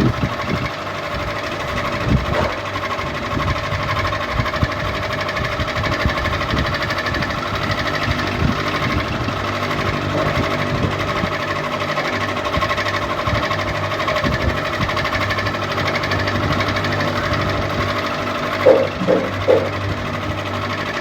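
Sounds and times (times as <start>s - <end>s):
ceiling fan humming: 15.0s - 20.8s.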